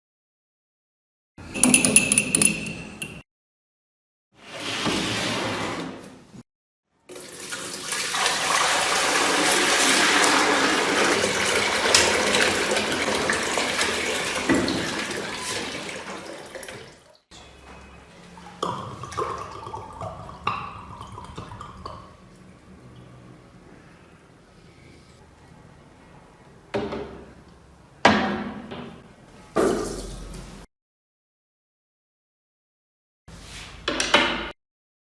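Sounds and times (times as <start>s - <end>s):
rushing water: 7.2s - 17.2s.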